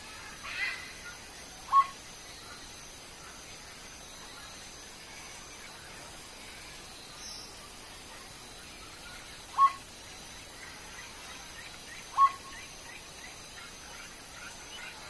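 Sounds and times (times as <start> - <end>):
faint chirping: 0.0 - 15.0
steady hiss: 0.0 - 15.0.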